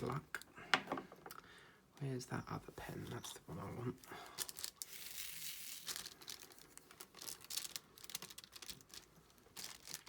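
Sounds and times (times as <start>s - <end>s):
plastic crinkling: 4.0s - 10.0s.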